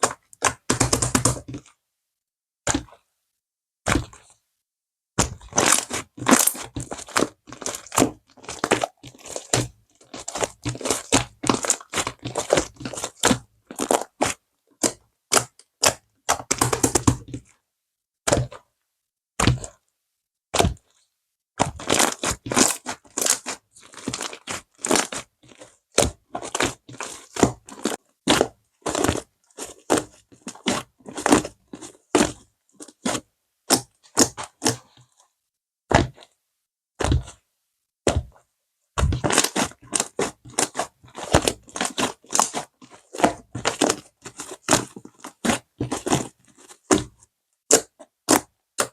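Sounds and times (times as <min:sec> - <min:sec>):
slime crackling and popping: 0:05.2 - 0:17.2, 0:21.6 - 0:34.9, 0:39.0 - 0:48.9.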